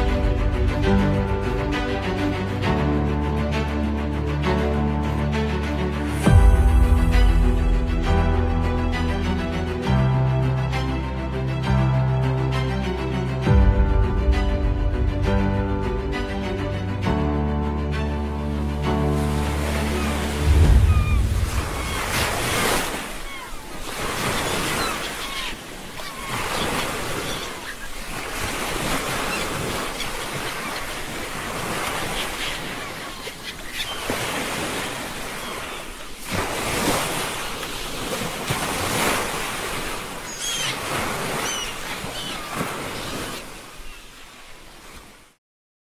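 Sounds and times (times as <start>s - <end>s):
waves breaking: 18.4s - 45.4s.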